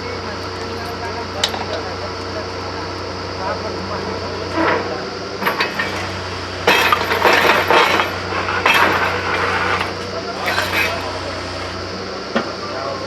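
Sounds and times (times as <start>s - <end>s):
clinking and clattering: 0.0s - 2.5s, 5.4s - 11.8s
drilling machine motor humming: 0.0s - 12.1s.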